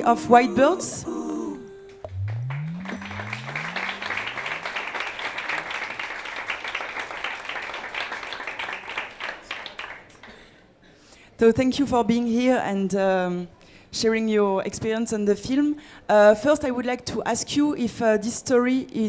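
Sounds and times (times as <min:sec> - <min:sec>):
low rising music tones: 0:00.0 - 0:05.5
audience applauding: 0:02.1 - 0:10.3.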